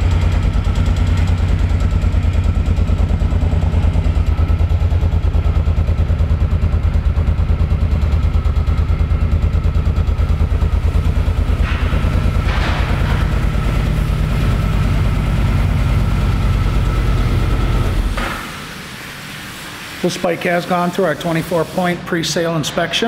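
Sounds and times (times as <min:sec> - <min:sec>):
motorcycle engine idling: 0:00.0 - 0:18.2.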